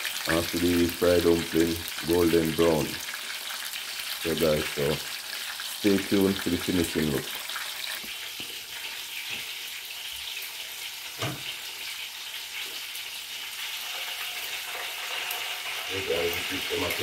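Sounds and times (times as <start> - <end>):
hot oil sizzling in a pan: 0.0 - 17.0
knock: 11.2 - 11.4.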